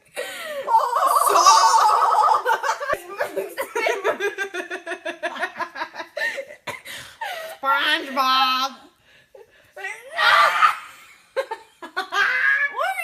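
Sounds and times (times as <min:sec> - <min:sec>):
people laughing: 0:00.7 - 0:06.6.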